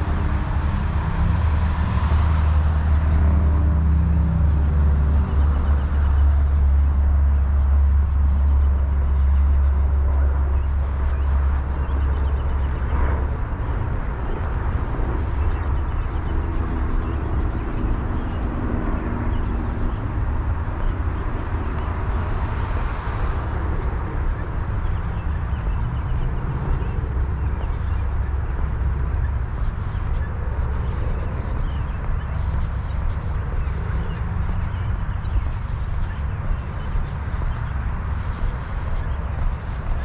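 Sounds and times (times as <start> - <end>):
road traffic rumble: 0.0 - 40.0.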